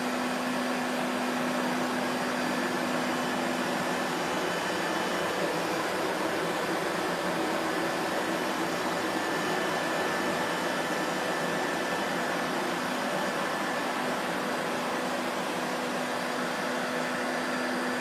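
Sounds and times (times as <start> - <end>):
vacuum cleaner motor running: 0.0 - 18.0.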